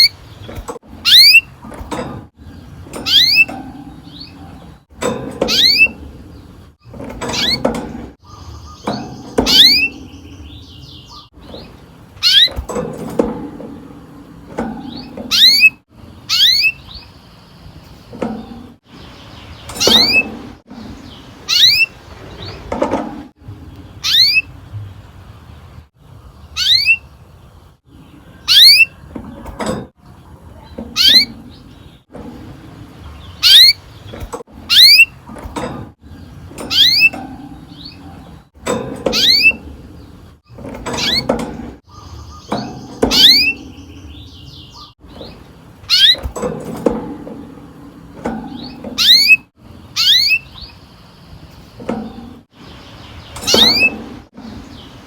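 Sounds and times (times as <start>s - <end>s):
canary chirp calls: 8.2s - 12.6s, 14.9s - 17.5s, 21.0s - 22.6s, 24.0s - 24.6s, 26.4s - 27.2s, 28.4s - 29.0s, 30.6s - 32.0s, 33.2s - 35.2s, 48.6s - 51.1s.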